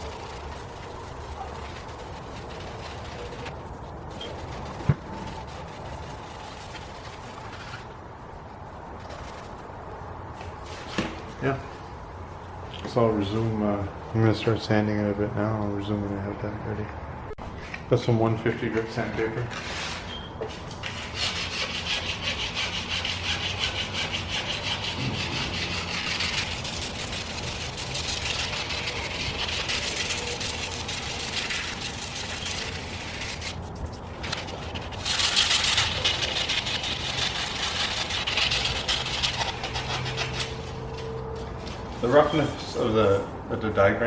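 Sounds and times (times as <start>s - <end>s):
sandpaper rubbing on metal rim: 0.0s - 8.0s, 20.8s - 43.2s.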